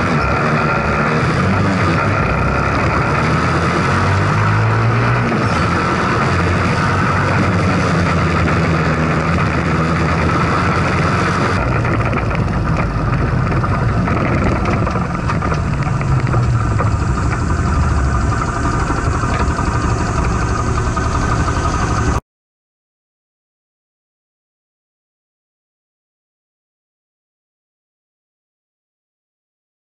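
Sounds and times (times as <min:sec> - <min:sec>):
minibike engine revving: 0:00.0 - 0:22.2.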